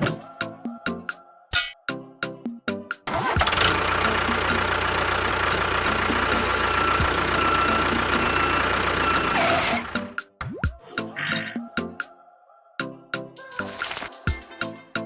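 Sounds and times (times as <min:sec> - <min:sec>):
engine running: 0:03.1 - 0:10.1.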